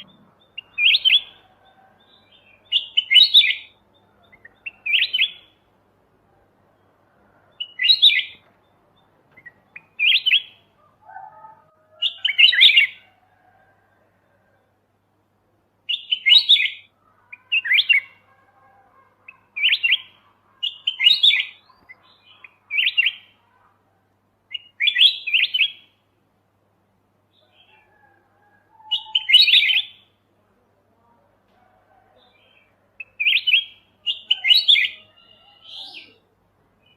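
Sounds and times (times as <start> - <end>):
bulbul singing: 0.0 - 5.7, 6.8 - 13.0, 15.9 - 18.3, 19.2 - 23.4, 24.5 - 26.0, 32.4 - 36.9.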